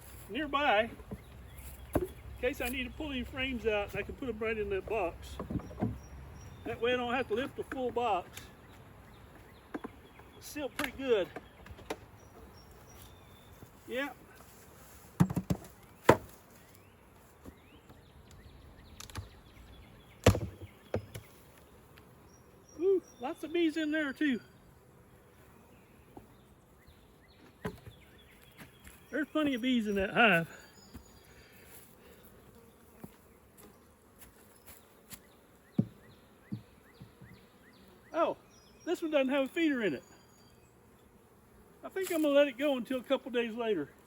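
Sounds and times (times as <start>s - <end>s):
honeybees buzzing: 0.0s - 44.0s
wooden knocks and clacks: 5.3s - 6.1s, 15.2s - 16.3s.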